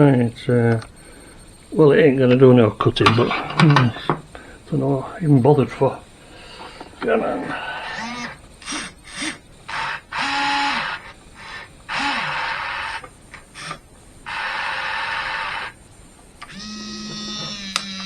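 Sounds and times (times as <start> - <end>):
electric motors whirring in bursts: 6.2 - 18.0
humming motor tone: 7.0 - 15.8, 16.4 - 18.0.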